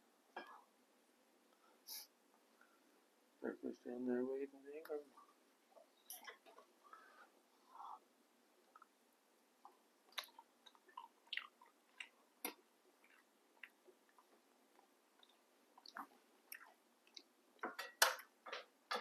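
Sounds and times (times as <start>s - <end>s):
chewing smacks and clicks: 9.6s - 17.3s.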